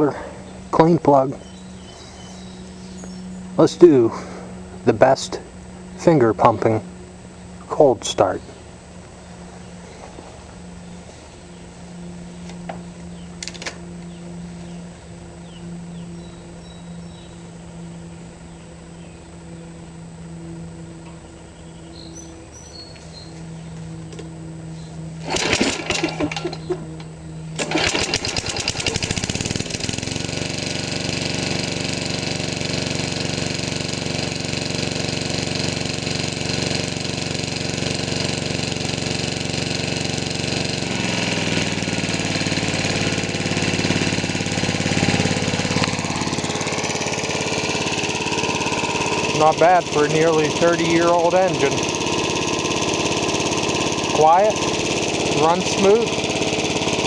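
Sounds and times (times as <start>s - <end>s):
small engine running: 0.0s - 57.0s
steady low hum: 0.0s - 57.0s
small engine cranking: 25.2s - 26.7s, 27.6s - 57.0s.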